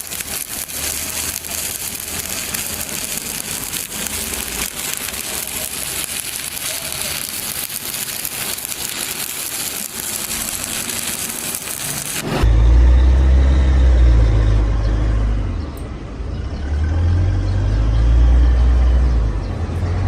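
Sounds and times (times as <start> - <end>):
welding arc crackling: 0.0 - 12.5.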